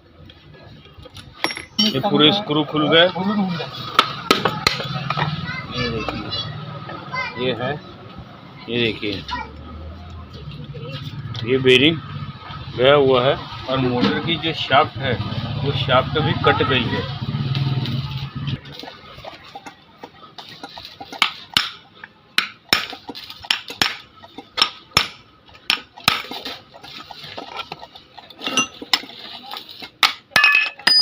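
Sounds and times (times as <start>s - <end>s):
metal parts clinking: 1.3s - 2.1s, 28.3s - 29.8s.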